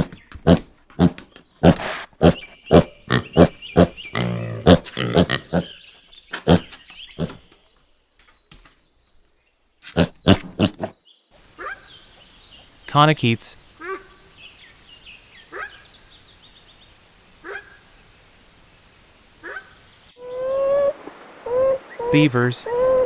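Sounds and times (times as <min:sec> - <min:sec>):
piglet grunting and squealing: 0:00.0 - 0:05.8, 0:06.4 - 0:07.4, 0:10.0 - 0:10.9.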